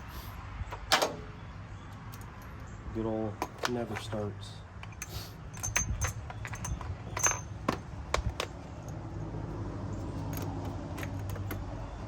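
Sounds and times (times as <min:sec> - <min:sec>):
small metal objects clinking: 0:04.8 - 0:07.6.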